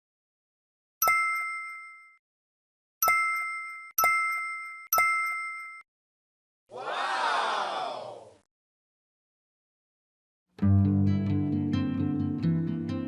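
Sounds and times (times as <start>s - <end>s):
bell-like ding chimes: 1.0s - 2.2s, 3.0s - 5.9s.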